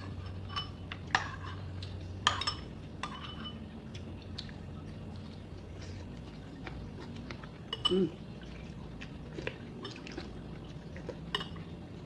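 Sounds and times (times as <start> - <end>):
cutlery clinking against dishes: 0.0 - 3.7, 7.7 - 8.1, 11.3 - 11.6.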